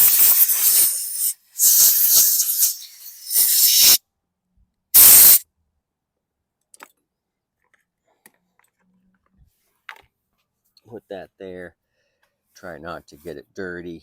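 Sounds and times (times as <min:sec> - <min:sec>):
air blow gun hissing: 0:00.0 - 0:04.0, 0:05.0 - 0:05.4
faint clicks of parts handled: 0:06.6 - 0:10.9.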